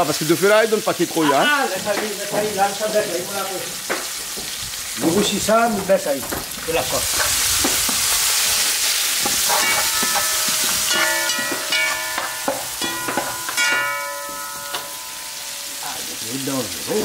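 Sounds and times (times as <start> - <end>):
food sizzling in hot oil: 0.0 - 17.0
skimmer knocking against pot: 9.2 - 15.4
metal skimmer scraping pot: 9.2 - 15.9
pot ringing: 9.4 - 16.3.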